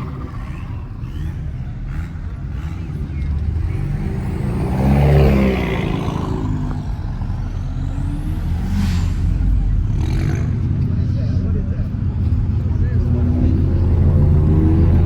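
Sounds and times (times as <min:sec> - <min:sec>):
car driving past: 0:00.0 - 0:11.2.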